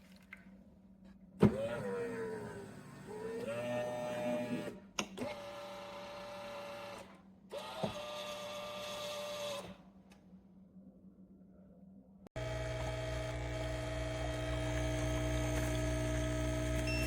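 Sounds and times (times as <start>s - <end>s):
espresso machine motor whine: 12.4s - 17.0s.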